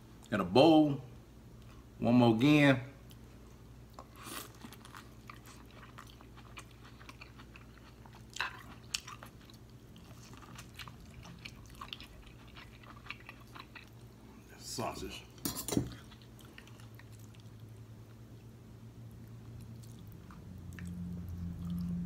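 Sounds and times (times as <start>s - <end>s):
person chewing corn: 3.9s - 14.4s, 15.9s - 18.5s, 19.1s - 22.0s.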